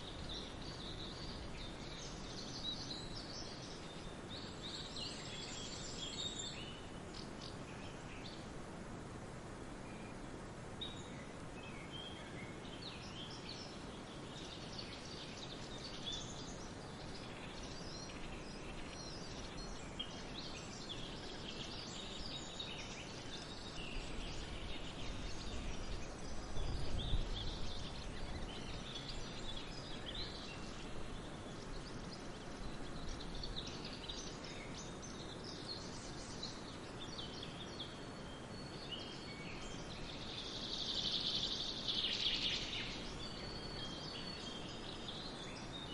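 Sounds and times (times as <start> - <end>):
steady background hiss: 0.0 - 45.9
birds chirping: 10.8 - 45.9.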